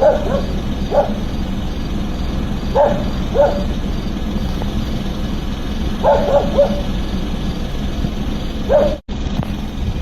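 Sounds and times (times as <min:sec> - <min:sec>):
dog barking: 0:00.0 - 0:01.3, 0:02.7 - 0:03.8, 0:06.0 - 0:07.0, 0:08.6 - 0:09.0
steady low hum: 0:00.0 - 0:10.0.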